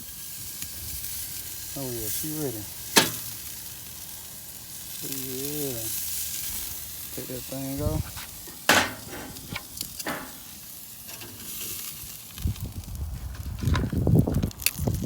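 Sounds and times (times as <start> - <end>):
meat sizzling on a grill: 0.0 - 15.0
low uneven rumble: 6.5 - 11.5.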